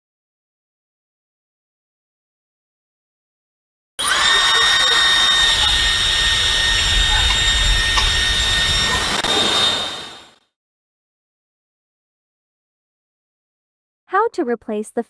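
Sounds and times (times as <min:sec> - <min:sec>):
hair dryer whining and blowing: 0:04.0 - 0:10.4.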